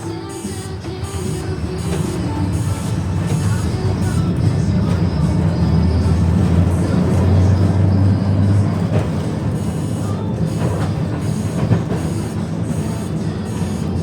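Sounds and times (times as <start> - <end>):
tram wheels rumbling on rail: 0.0 - 14.0.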